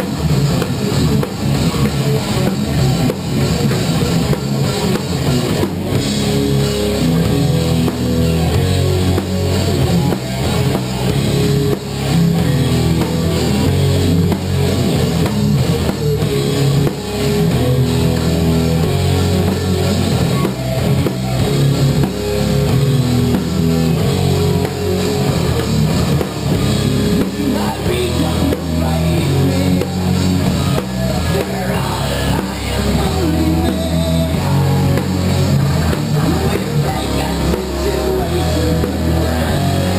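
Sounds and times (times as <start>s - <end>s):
drum kit: 0.0s - 39.9s
guitar: 0.0s - 39.9s.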